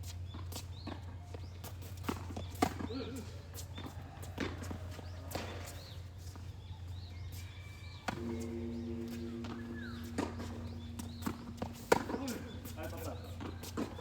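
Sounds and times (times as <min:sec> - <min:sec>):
tennis balls struck and bouncing: 0:02.0 - 0:05.8, 0:08.1 - 0:14.0
steady low hum: 0:07.9 - 0:14.0
faint high chirps: 0:08.1 - 0:14.0
steady droning tone: 0:08.1 - 0:14.0.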